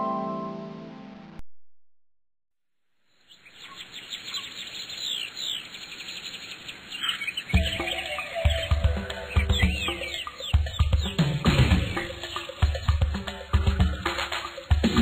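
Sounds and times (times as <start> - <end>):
birds chirping: 3.1 - 15.0.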